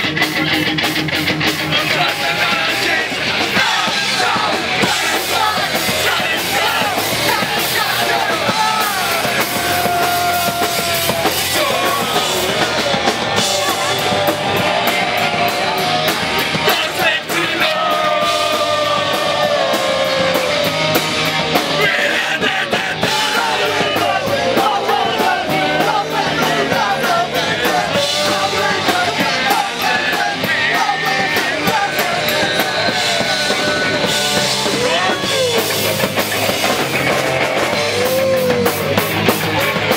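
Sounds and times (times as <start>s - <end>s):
punk band playing live: 0.0s - 39.9s.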